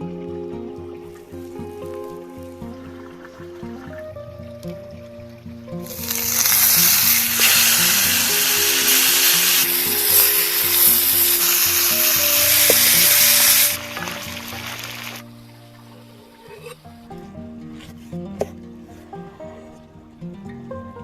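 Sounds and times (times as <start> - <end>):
background music: 0.0 - 21.0
food sizzling in hot fat: 5.8 - 15.3.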